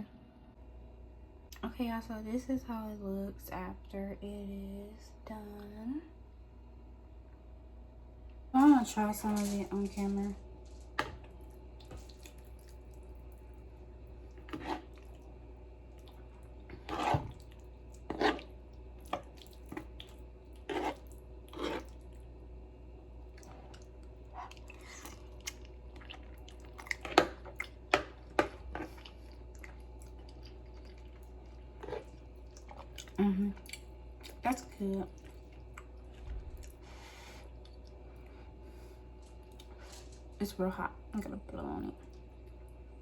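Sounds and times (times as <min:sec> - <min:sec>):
steady low hum: 0:00.0 - 0:43.0
chewing and lip smacks: 0:11.4 - 0:13.5, 0:15.9 - 0:16.7, 0:17.3 - 0:22.3, 0:23.3 - 0:34.4, 0:35.0 - 0:38.3, 0:39.2 - 0:40.1.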